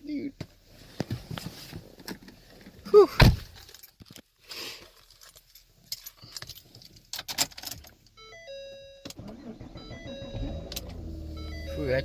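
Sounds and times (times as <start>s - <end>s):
keys jangling and clicking: 5.0s - 7.9s
electronic chime tones: 11.2s - 12.0s.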